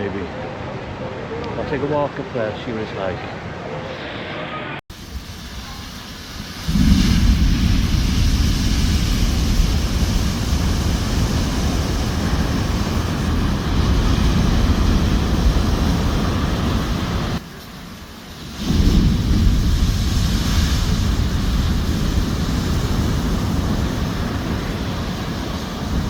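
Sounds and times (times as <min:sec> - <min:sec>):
ocean surf breaking: 0:04.9 - 0:26.0
wind rumble on microphone: 0:04.9 - 0:26.0.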